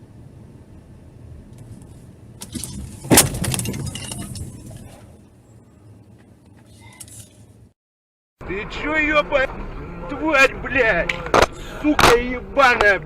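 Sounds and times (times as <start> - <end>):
road and engine noise: 0.0 - 7.8, 8.4 - 13.0
loud crunching car impact: 2.4 - 5.1
debris rattling and breaking: 2.5 - 5.0.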